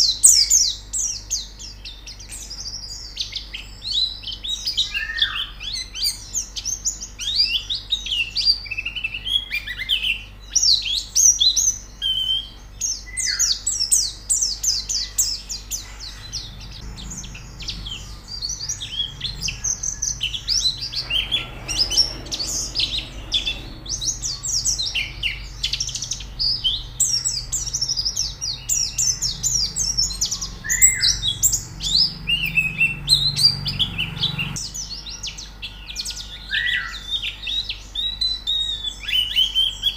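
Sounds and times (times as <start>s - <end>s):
birds twittering: 0.0s - 39.9s
faint low hum: 13.7s - 36.2s.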